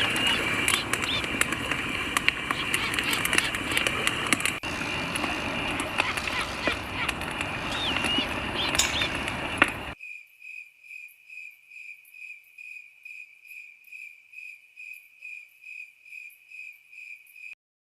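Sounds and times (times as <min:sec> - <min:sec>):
crickets chirping: 0:00.0 - 0:03.8, 0:04.6 - 0:17.6
noisy background with clicks: 0:00.0 - 0:10.0.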